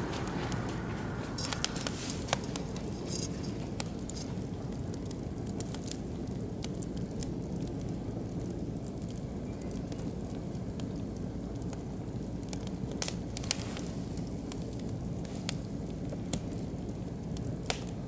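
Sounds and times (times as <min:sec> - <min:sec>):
low rumble: 0:00.0 - 0:04.8
fire popping: 0:00.0 - 0:09.2
wood fire crackling: 0:00.0 - 0:18.0.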